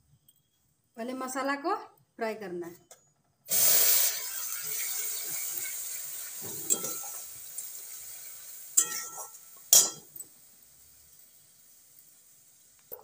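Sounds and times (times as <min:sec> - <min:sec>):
paste sizzling in oil: 0:03.5 - 0:13.0
metal spatula scraping pan: 0:06.4 - 0:07.2.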